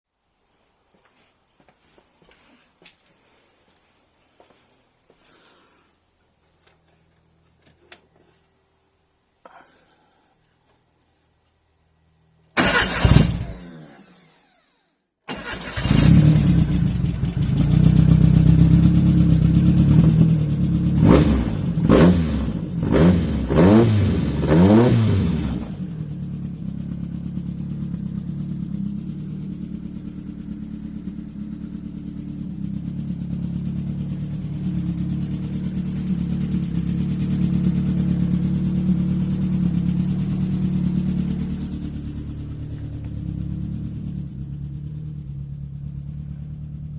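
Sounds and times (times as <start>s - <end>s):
car engine starting and revving: 12.6s - 14.7s, 15.3s - 33.2s.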